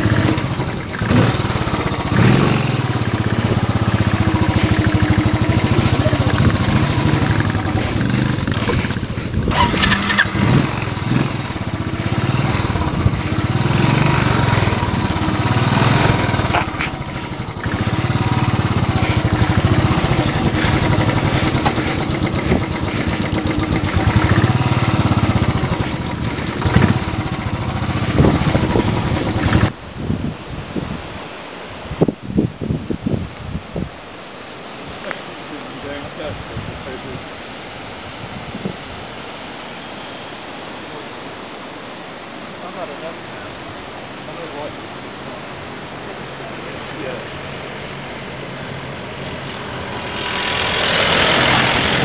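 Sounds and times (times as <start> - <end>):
motorcycle engine running: 0.0 - 29.8, 45.9 - 52.0.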